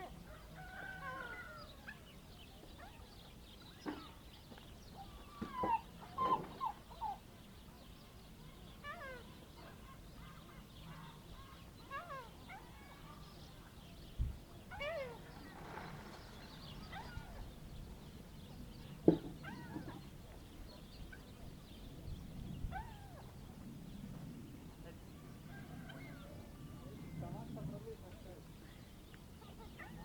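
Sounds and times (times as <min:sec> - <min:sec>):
seagulls calling: 0:04.9 - 0:07.3, 0:14.7 - 0:17.7, 0:19.0 - 0:20.2, 0:29.4 - 0:30.0.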